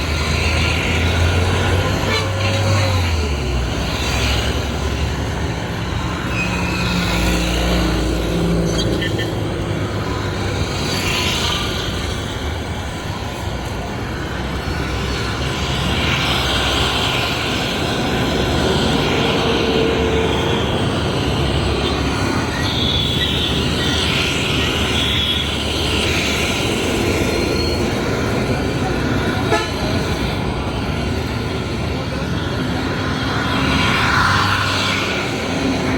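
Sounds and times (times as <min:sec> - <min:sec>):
street traffic: 0:00.0 - 0:35.9
car horn toots: 0:29.4 - 0:29.9.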